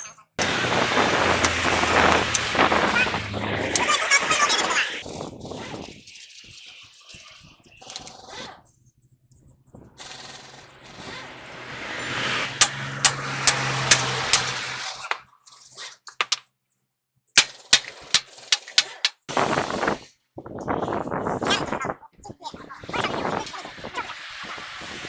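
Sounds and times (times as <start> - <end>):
metal scraping: 0.0 - 4.1, 10.9 - 15.2, 17.4 - 19.3
power tool humming: 0.4 - 4.2, 11.7 - 14.9
ringing metal strikes: 12.6 - 14.7, 17.4 - 19.2.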